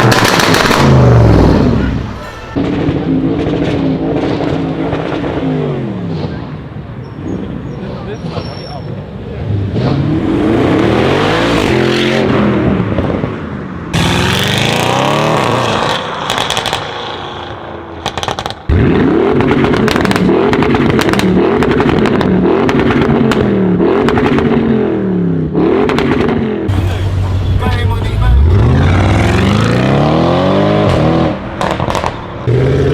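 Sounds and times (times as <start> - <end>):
exhaust crackles and pops: 0.0 - 1.0, 16.2 - 17.3, 18.0 - 24.5, 30.8 - 32.4
car engine revving and accelerating: 9.4 - 13.3, 13.9 - 32.9.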